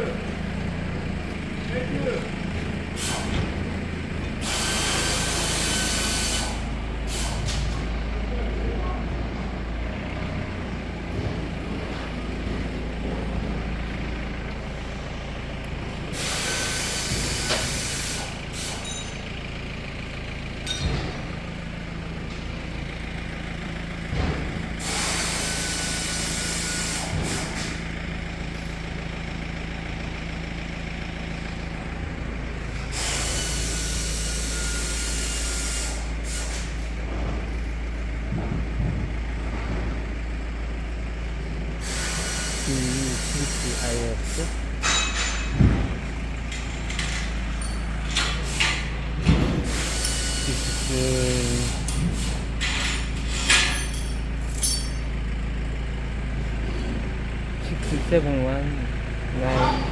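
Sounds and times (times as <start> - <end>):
vehicle engine running: 0.0 - 59.9
bursts of hissing air: 4.4 - 7.7, 16.1 - 18.8, 24.8 - 27.7, 32.9 - 36.8, 41.8 - 44.8, 48.3 - 52.6.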